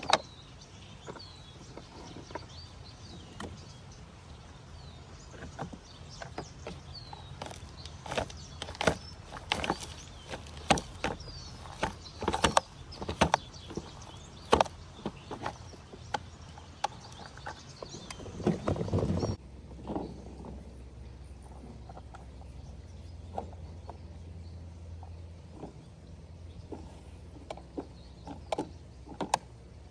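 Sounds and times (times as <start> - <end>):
plastic toy clicks and clacks: 6.6 - 18.2.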